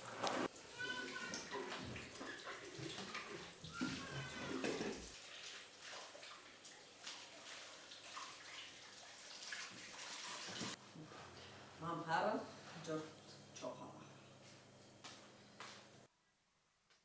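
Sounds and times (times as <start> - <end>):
water running: 0.0 - 10.8.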